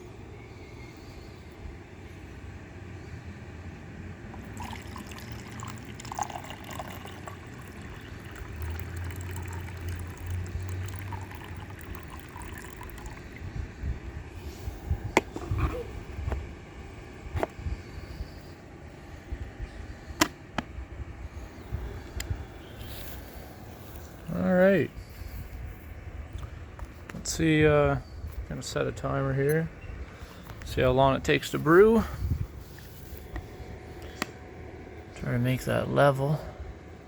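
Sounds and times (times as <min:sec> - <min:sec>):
water pouring into reservoir: 0:04.4 - 0:13.5.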